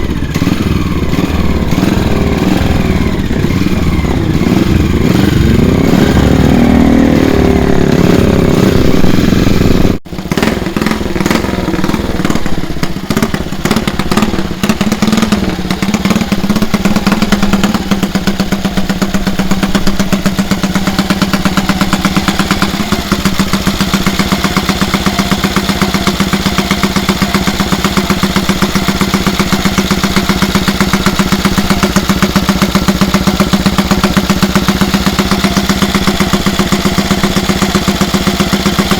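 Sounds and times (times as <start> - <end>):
motorcycle engine idling: 0.0 - 38.9
motorcycle engine revving: 0.0 - 38.9.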